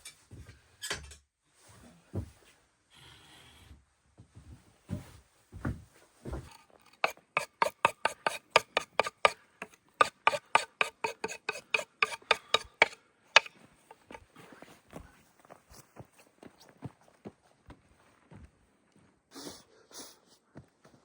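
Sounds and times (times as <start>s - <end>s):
rasping strokes: 6.5s - 14.2s.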